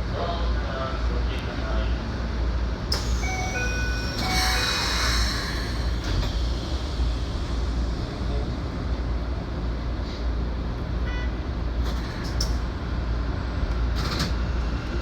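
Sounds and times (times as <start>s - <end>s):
train wheels rumbling on rail: 0.0s - 15.0s
hiss: 4.2s - 8.3s.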